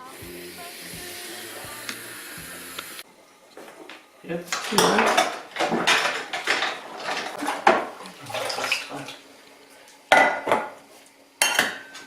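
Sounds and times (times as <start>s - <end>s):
dishes clinking: 4.6s - 8.8s, 10.1s - 10.8s, 11.4s - 12.0s
water splashing in a sink: 4.6s - 9.6s.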